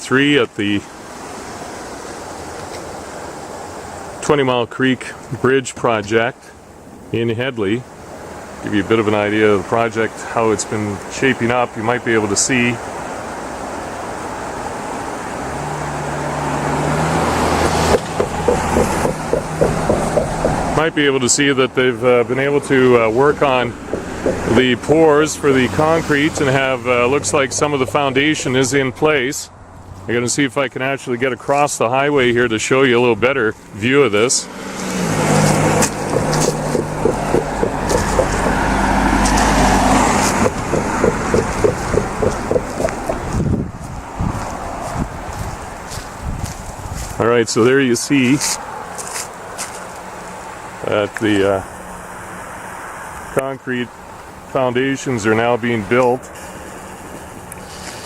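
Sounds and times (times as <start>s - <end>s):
highway traffic passing: 0.0s - 5.4s, 6.3s - 58.0s
vehicle tyre noise: 10.2s - 58.0s
low engine hum: 13.0s - 30.2s, 33.6s - 47.2s.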